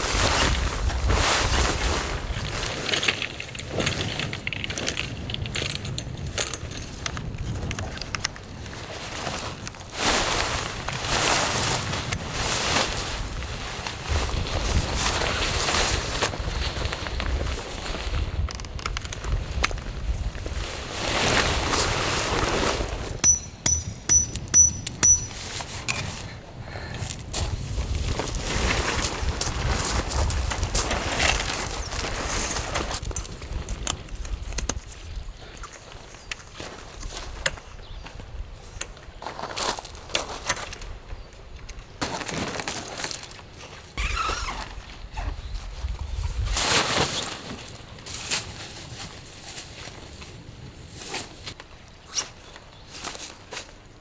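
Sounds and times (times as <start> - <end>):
rustling noise: 0.0 - 23.2, 25.2 - 37.4, 42.0 - 54.0
sharp metallic clinks: 23.2 - 25.6.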